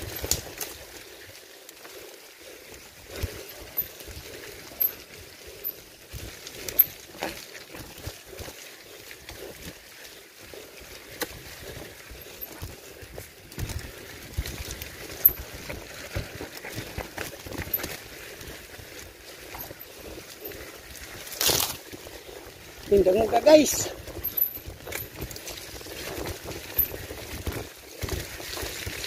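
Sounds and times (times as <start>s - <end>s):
rumble of tyres and wind: 0.0s - 29.0s
bike knocking and clattering: 13.5s - 18.1s.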